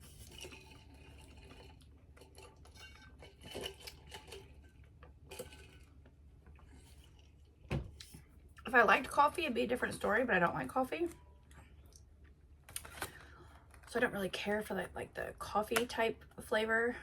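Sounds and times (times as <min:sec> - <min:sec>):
chewing crunchy cereal: 0:00.0 - 0:07.6.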